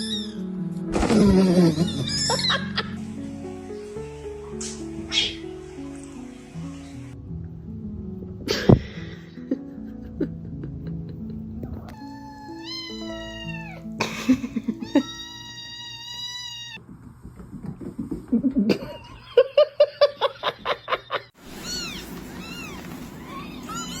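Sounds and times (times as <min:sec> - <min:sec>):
background music: 0:00.0 - 0:15.6
cat meowing: 0:11.9 - 0:13.9, 0:14.8 - 0:16.8, 0:21.5 - 0:24.0.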